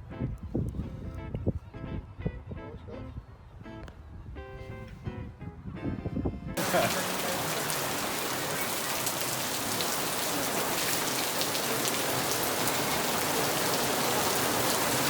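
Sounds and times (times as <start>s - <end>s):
heavy rain pouring: 6.6s - 15.0s
raindrops striking near microphone: 6.6s - 15.0s.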